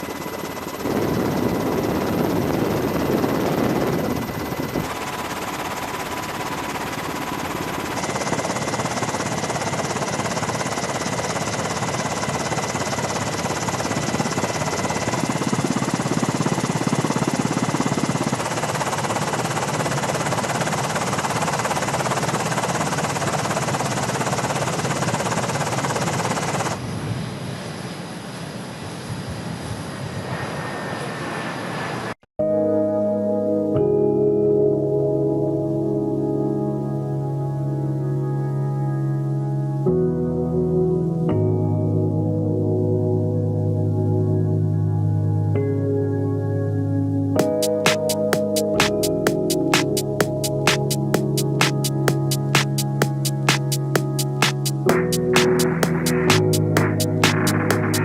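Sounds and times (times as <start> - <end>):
aircraft engine noise: 0.0 - 26.9, 47.4 - 58.0.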